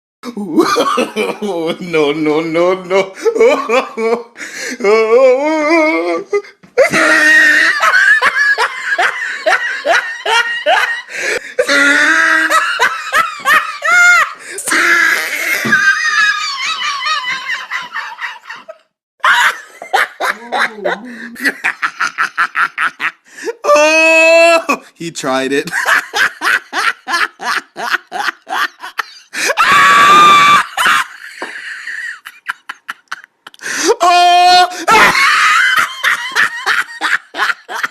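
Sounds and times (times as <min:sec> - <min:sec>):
person laughing: 0:00.3 - 0:02.0, 0:02.9 - 0:24.0, 0:25.7 - 0:37.9
person screaming: 0:04.8 - 0:07.9, 0:11.6 - 0:12.8, 0:13.8 - 0:17.1, 0:23.6 - 0:24.8, 0:29.4 - 0:31.1, 0:33.7 - 0:35.8
person laughing in hoots: 0:06.8 - 0:08.2.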